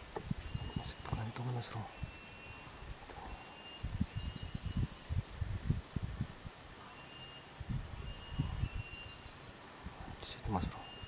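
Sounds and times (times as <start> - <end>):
small bird chirps trilling: 6.7 - 11.0.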